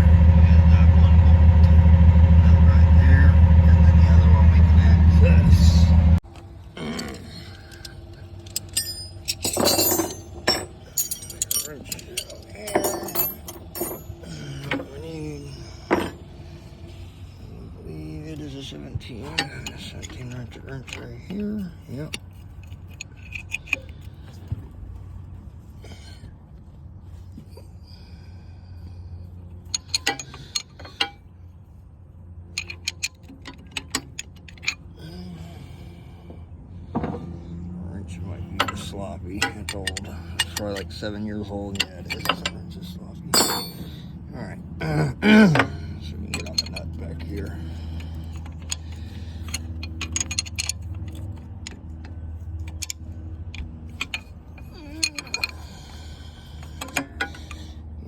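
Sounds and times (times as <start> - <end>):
steady low hum: 0.0 - 58.0
wrench clinking on metal: 7.0 - 16.3, 19.2 - 24.4, 29.6 - 31.4, 32.5 - 35.0, 38.4 - 44.1, 45.5 - 57.8
ratcheting wrench clicking: 22.1 - 24.2, 29.7 - 31.1, 32.6 - 34.9, 46.2 - 57.8.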